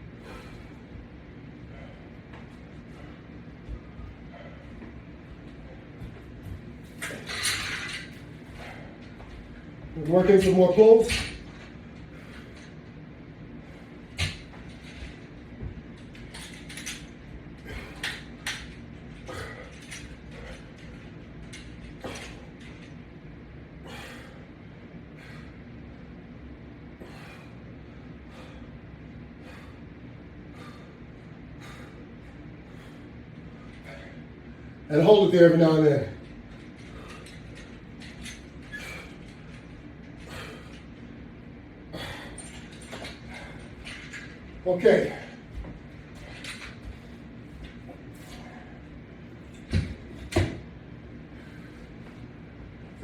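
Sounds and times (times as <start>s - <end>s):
low room hum: 0.0s - 53.0s
exercise hardware clinking and creaking: 3.8s - 12.9s, 14.0s - 23.2s, 34.9s - 41.2s, 41.9s - 50.7s.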